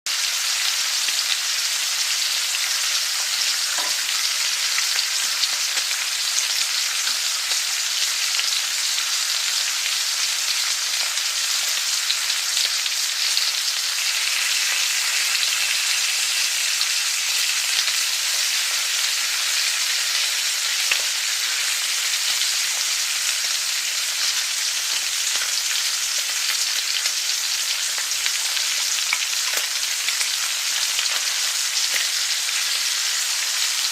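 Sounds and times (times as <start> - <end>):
food sizzling in hot oil: 0.1 - 33.9.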